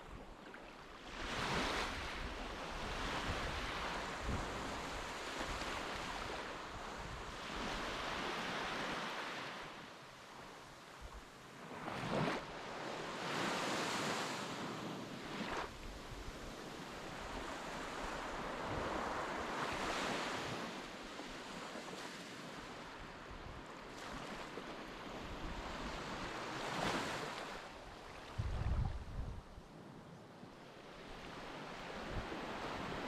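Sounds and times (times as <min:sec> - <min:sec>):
wind rumbling on microphone: 0:01.2 - 0:08.0, 0:27.8 - 0:29.6.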